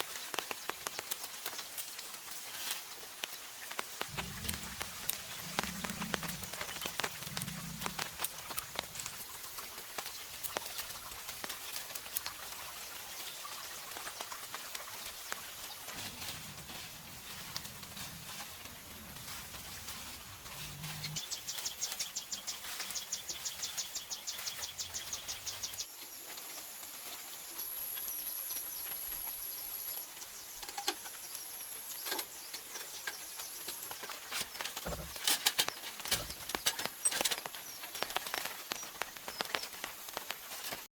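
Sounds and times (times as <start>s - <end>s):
insects chirping: 4.1s - 11.8s
sharp clicks and knocks: 32.1s - 40.8s.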